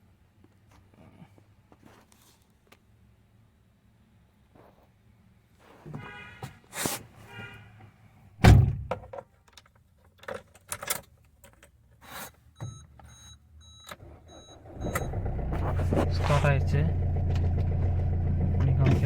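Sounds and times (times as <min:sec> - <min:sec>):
car door slamming: 0:08.4 - 0:09.0.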